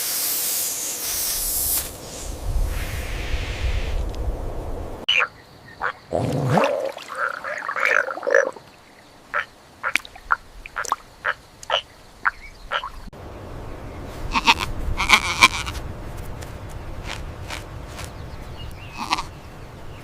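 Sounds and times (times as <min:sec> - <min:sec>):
animal calls: 0:18.9 - 0:19.3.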